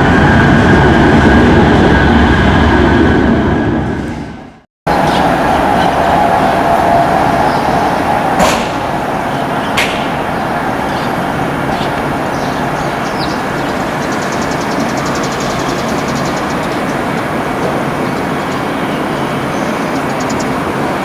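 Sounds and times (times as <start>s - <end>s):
train running on rails: 0.0s - 21.0s
steady tone: 4.9s - 19.3s.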